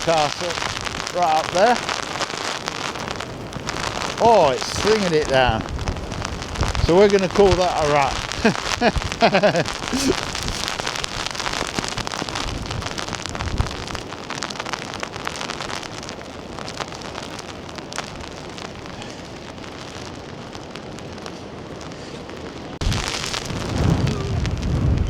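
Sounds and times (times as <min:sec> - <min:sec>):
heavy rain: 0:00.0 - 0:25.0
raindrops ticking on microphone: 0:00.0 - 0:25.0
deep rumbling rush: 0:02.9 - 0:14.2, 0:22.8 - 0:25.0.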